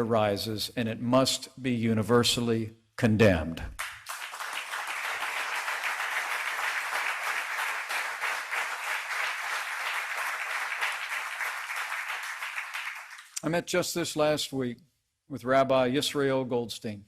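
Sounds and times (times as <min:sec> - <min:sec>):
audience applauding: 0:03.8 - 0:13.4.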